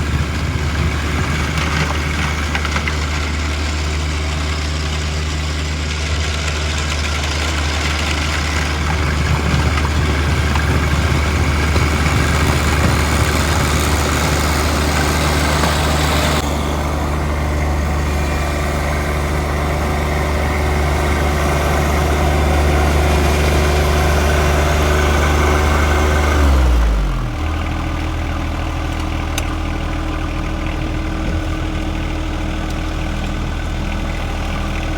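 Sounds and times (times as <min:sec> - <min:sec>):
tractor diesel engine running: 0:00.0 - 0:34.9
hissing whirr: 0:10.4 - 0:26.6.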